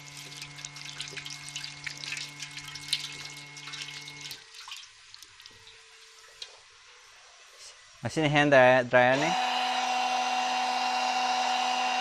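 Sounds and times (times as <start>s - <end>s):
water spattering into basin: 0.0s - 6.6s
faint water drips: 0.0s - 7.7s
water pump motor hum: 0.0s - 12.0s.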